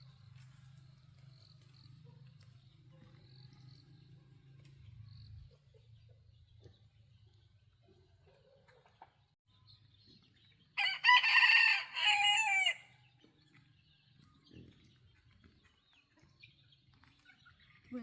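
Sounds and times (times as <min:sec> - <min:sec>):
rooster crowing: 0:10.8 - 0:12.9.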